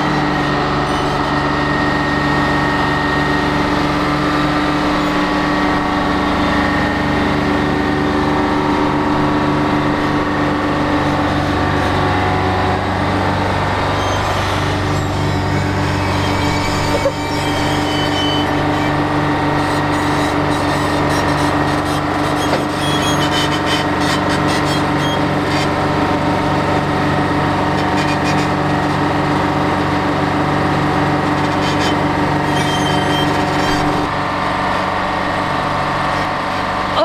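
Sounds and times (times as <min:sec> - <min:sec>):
excavator diesel engine running: 0:00.0 - 0:37.0
rattling and scraping: 0:03.5 - 0:30.0, 0:31.0 - 0:34.8.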